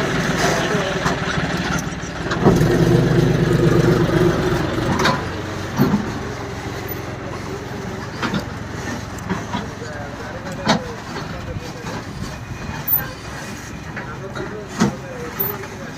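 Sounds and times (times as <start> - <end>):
tractor engine running: 0.0 - 15.9.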